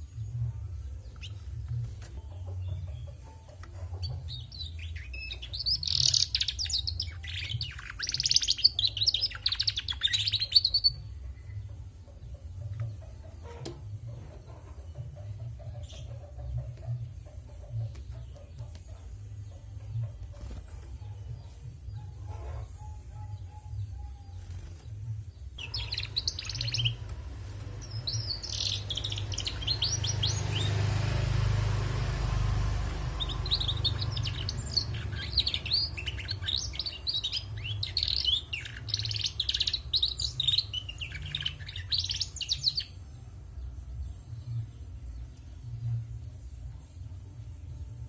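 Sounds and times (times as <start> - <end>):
canary twittering: 3.8 - 11.1, 25.6 - 43.0
steady low hum: 10.2 - 48.0
low rumbling noise: 25.3 - 48.0.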